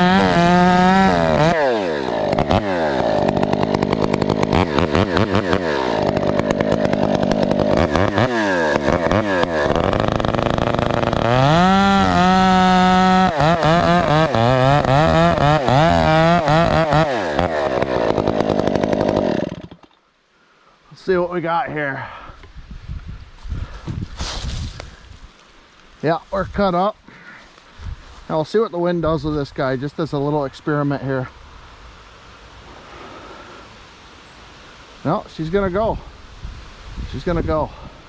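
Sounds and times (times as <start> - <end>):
chainsaw revving: 0.0 - 20.0.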